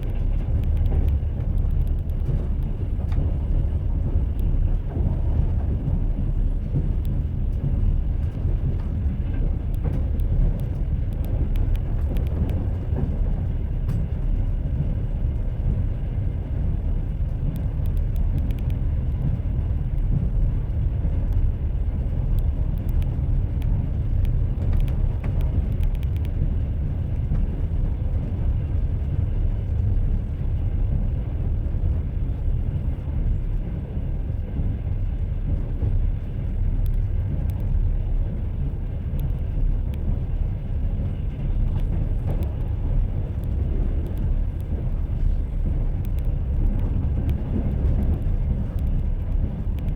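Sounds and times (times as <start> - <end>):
train wheels rumbling on rails: 0.0 - 49.9
faint light clicks: 46.0 - 49.9.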